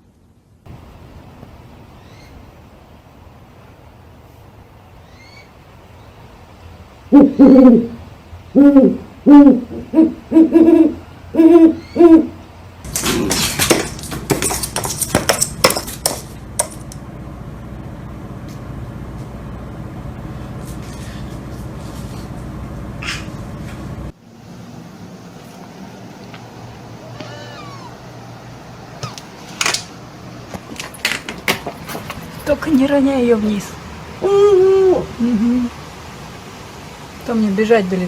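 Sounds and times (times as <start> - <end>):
owl hooting: 7.1 - 12.4, 23.0 - 23.4, 27.0 - 28.2
rustling and crackling: 12.8 - 17.1, 28.9 - 33.7.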